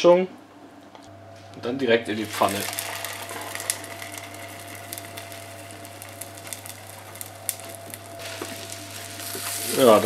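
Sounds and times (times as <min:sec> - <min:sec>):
faint steady hum: 0:00.0 - 0:10.0
meat sizzling in a pan: 0:02.1 - 0:10.0.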